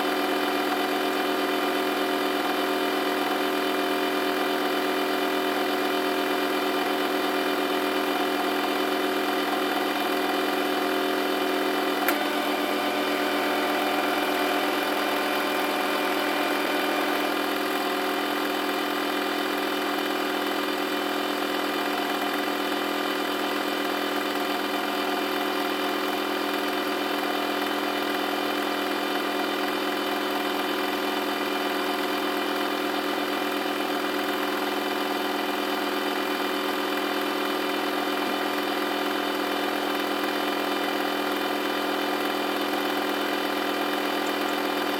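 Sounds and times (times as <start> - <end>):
washing machine humming: 10.5 - 20.8
sharp click: 12.0 - 12.3.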